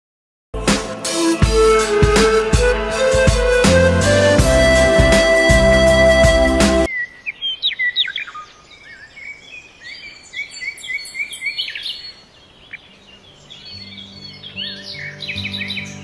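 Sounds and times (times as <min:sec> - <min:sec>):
soft music with low notes: 0:00.6 - 0:06.9, 0:13.2 - 0:16.0
birds singing and chirping: 0:06.8 - 0:16.0.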